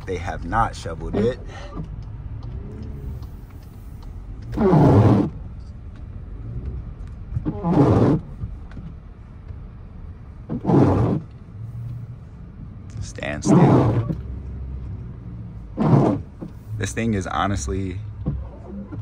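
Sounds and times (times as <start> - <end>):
car engine revving: 0.0 - 8.4, 10.2 - 12.3, 12.9 - 19.0
low steady rumble: 0.0 - 19.0.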